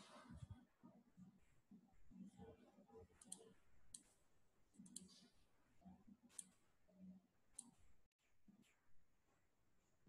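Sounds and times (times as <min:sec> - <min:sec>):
faint computer mouse clicks: 0:03.2 - 0:04.1, 0:04.8 - 0:05.2.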